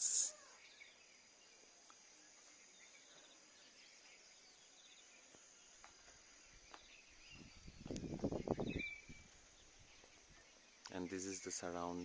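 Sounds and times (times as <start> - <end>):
high insect trill: 0.0 - 1.4.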